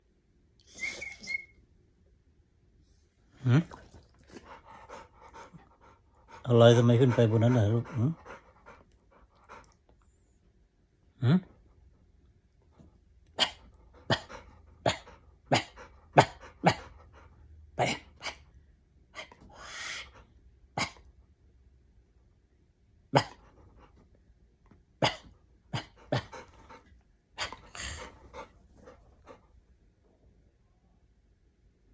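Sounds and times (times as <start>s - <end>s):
dog rasping breaths: 4.3s - 9.8s, 25.0s - 29.5s
dog huffing and coughing: 13.4s - 17.0s, 17.8s - 18.4s, 20.8s - 21.0s, 23.1s - 23.6s, 25.0s - 29.4s.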